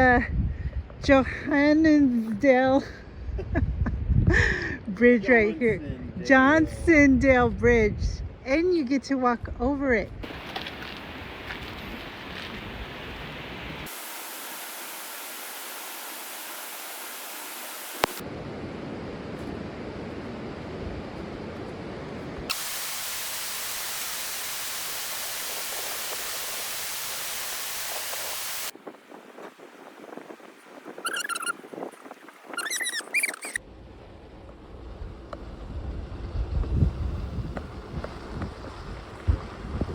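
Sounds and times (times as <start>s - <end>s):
rushing river water: 10.2s - 18.2s.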